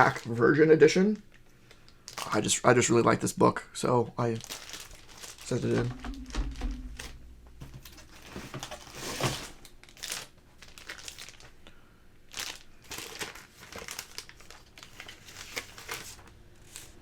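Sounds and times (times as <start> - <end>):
plastic packaging crinkling: 2.0 - 2.5, 4.2 - 5.8, 8.6 - 11.6, 12.3 - 17.0.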